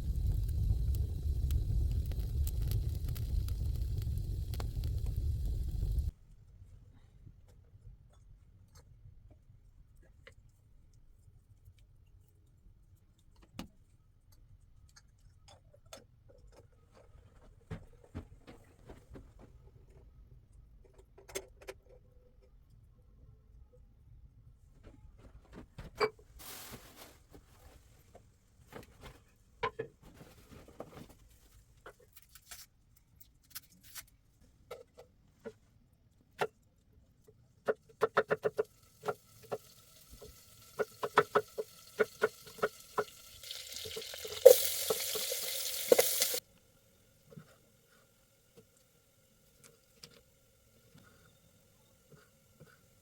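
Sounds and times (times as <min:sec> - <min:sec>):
hissing noise: 0:00.0 - 0:06.1, 0:43.7 - 0:46.4.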